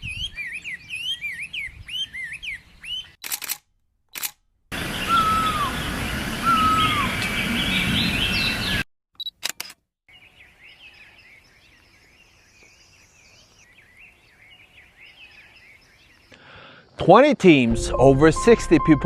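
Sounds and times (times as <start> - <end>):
small birds twittering: 0.0 - 3.2, 4.8 - 8.8, 10.1 - 16.9
camera shutter clicks: 3.2 - 4.4, 9.2 - 9.8
high bird chirps: 4.8 - 8.8
bird falling whistle: 5.0 - 7.4.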